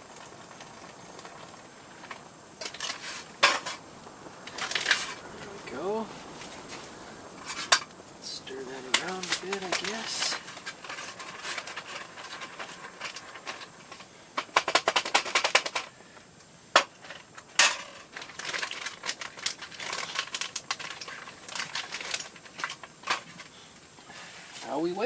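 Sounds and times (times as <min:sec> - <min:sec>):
spoon stirring in foil pouch: 0:08.5 - 0:14.0, 0:18.0 - 0:24.6.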